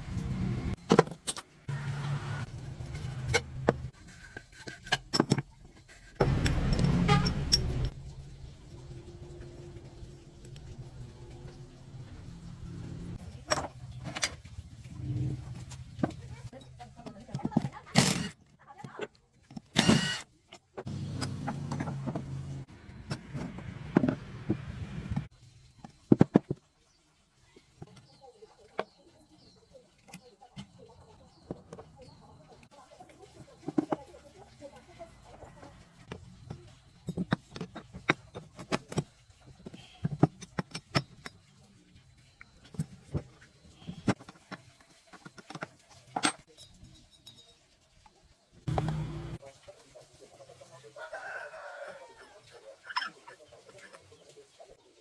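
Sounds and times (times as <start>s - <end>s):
sharp clicks and knocks: 6.2s - 8.0s, 20.8s - 25.3s.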